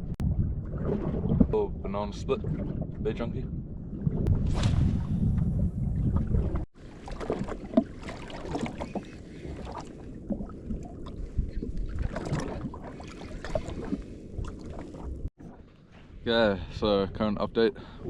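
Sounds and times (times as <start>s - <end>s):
wind buffeting microphone: 0.0s - 6.7s
water slapping against hull: 0.0s - 16.2s.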